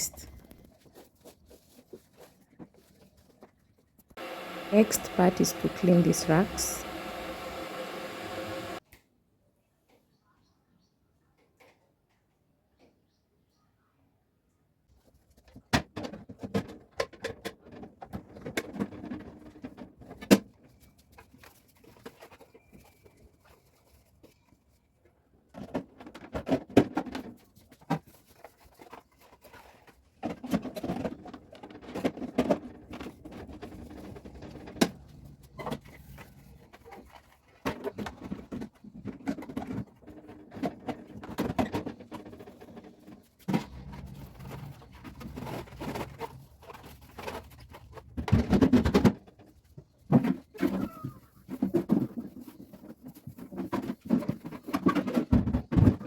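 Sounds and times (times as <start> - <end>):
scrubbing and scraping fridge racks: 25.5 - 50.5.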